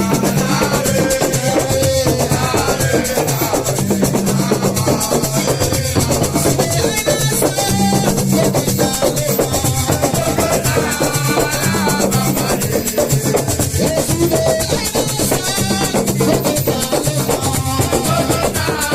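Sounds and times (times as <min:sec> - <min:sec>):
repeating bass line: 0:00.0 - 0:07.0
drums: 0:00.0 - 0:18.9
shakers: 0:00.0 - 0:18.9.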